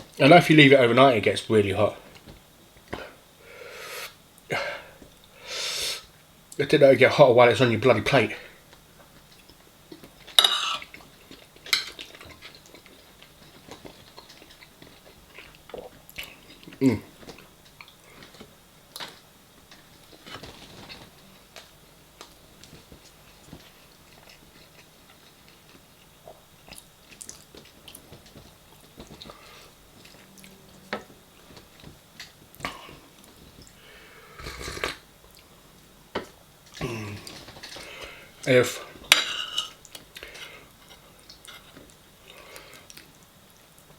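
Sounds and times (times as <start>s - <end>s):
chewing and mouth sounds: 9.2s - 21.0s, 21.6s - 30.8s.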